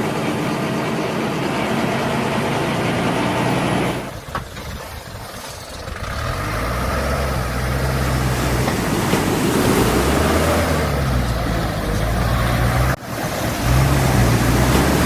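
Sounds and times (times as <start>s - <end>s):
heavy vehicle engine running: 0.0s - 15.0s
low engine hum: 0.0s - 15.0s.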